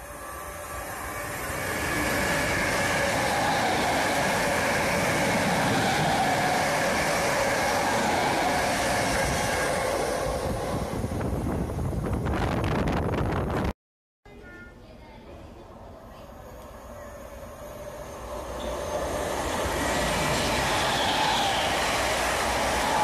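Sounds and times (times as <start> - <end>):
train whine: 0.0 - 13.7, 15.7 - 23.0
train wheels rumbling on rail: 0.8 - 13.7, 17.6 - 23.0.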